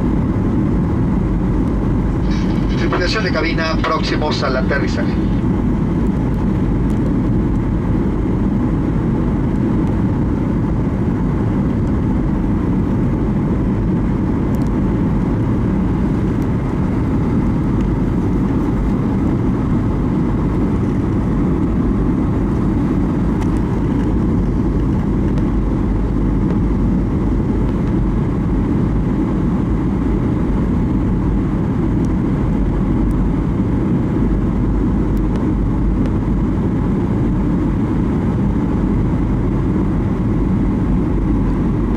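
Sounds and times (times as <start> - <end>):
rushing air: 0.0 - 8.0
jet engines roaring: 0.0 - 41.9
faint steady tones: 1.9 - 5.6.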